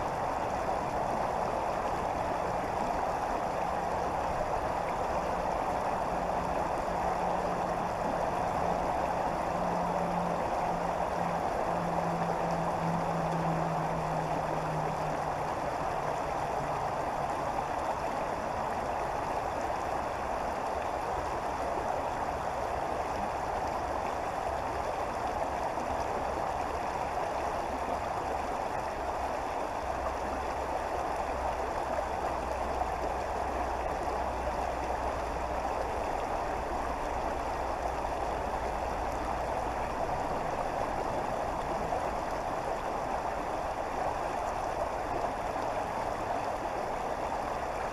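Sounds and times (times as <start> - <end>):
creek water flowing: 0.0 - 47.9
faint low rumble: 0.3 - 18.8.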